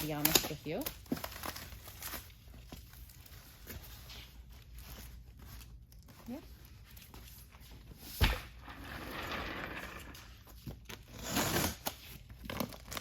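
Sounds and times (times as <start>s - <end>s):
cardboard scraping and tearing: 11.0s - 13.0s.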